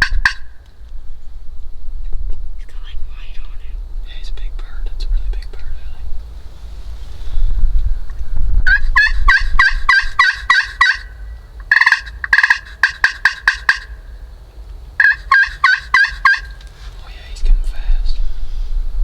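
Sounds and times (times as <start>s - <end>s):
turkey calling: 0.0s - 0.8s, 8.6s - 17.2s
low rumble: 0.0s - 12.3s, 16.4s - 19.0s.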